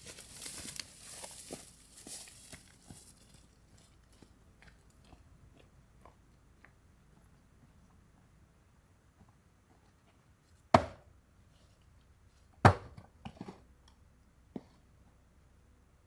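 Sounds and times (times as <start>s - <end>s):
firewood knocking: 10.8s - 11.0s.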